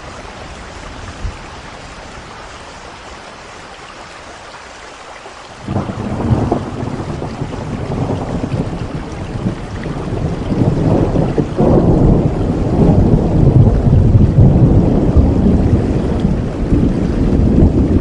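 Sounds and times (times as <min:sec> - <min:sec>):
heavy rain: 0:00.0 - 0:18.0
thunder rumbling: 0:05.6 - 0:18.0.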